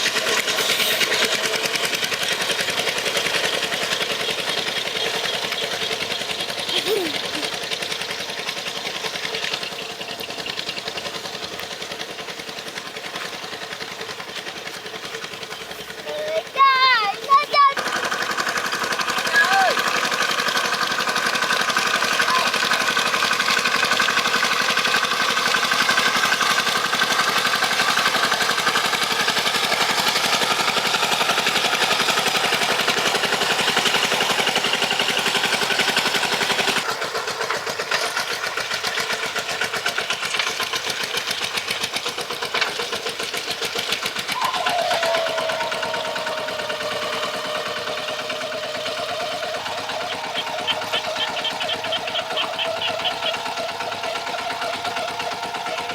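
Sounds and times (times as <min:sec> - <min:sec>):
tractor engine running: 0:00.0 - 0:55.9
whine gliding down in pitch: 0:44.4 - 0:55.9.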